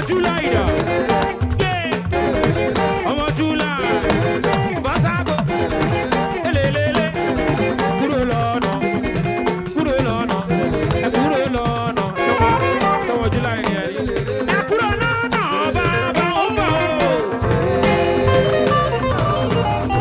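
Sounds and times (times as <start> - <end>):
drums: 0.0 - 20.0
shaker rattling: 0.0 - 20.0
saxophone melody: 0.2 - 3.2, 10.5 - 13.9, 14.6 - 20.0.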